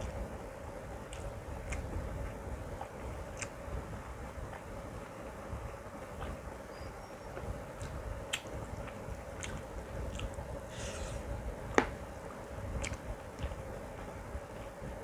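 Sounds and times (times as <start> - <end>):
faint steady hum: 0.0 - 15.0
person chewing food: 1.0 - 4.8, 7.4 - 14.8
wet mouth clicks and smacks: 12.8 - 13.6.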